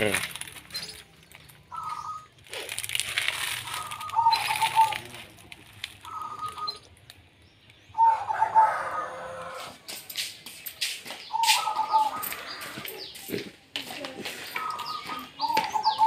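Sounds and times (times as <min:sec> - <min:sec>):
birds calling: 0:00.0 - 0:16.0
rustling noise: 0:02.4 - 0:06.1.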